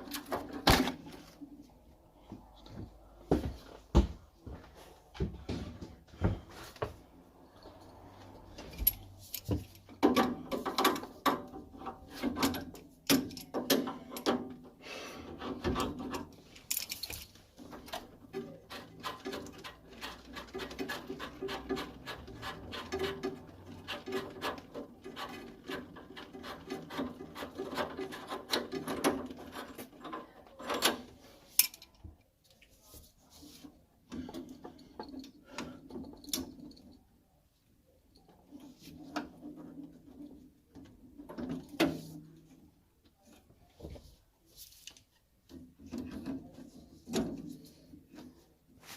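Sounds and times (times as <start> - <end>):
tools and metal fittings clicking: 16.0 - 32.0
rubbing and scraping: 17.4 - 30.0.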